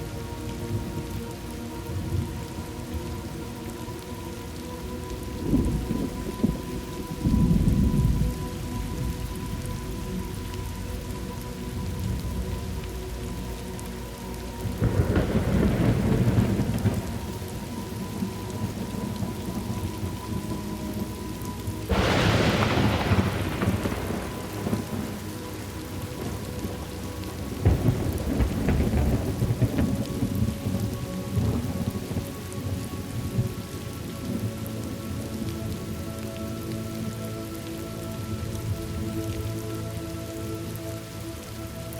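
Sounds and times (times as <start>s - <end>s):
steady rain: 0.0s - 41.9s
thunder rolling: 5.4s - 11.2s, 14.7s - 21.0s, 21.9s - 34.4s.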